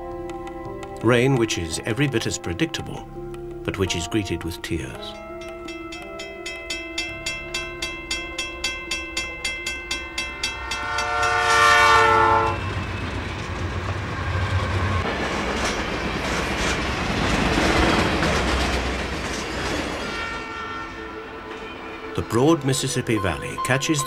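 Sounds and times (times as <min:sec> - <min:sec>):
railroad crossing bell ringing: 0:03.9 - 0:13.5, 0:20.2 - 0:24.0
train wheels clattering on rails: 0:09.2 - 0:20.6
train horn blast: 0:10.5 - 0:12.8, 0:20.0 - 0:22.3.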